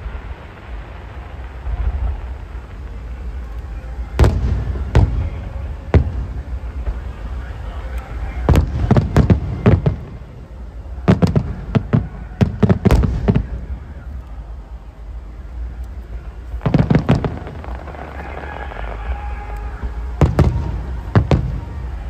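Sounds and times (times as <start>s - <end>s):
firework shells bursting: 16.6s - 22.0s.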